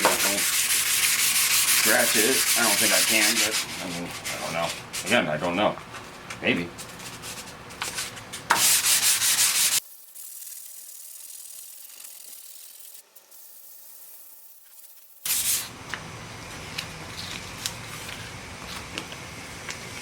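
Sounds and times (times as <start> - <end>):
sandpaper rubbing on metal: 0.0 - 5.3, 6.8 - 15.7.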